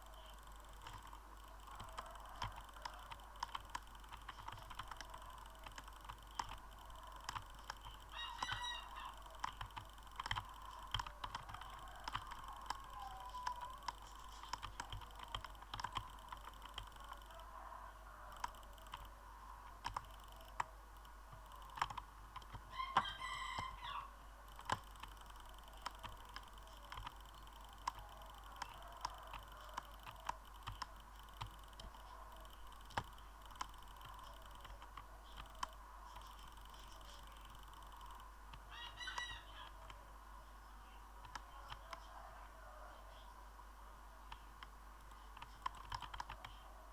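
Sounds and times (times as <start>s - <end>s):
sharp clicks: 0.0s - 17.5s, 18.3s - 23.8s, 24.5s - 40.0s, 41.2s - 42.1s, 44.3s - 46.6s
rooster crowing: 8.1s - 9.4s, 10.5s - 14.2s, 16.9s - 19.1s, 22.7s - 24.2s, 27.6s - 30.4s, 38.7s - 39.9s.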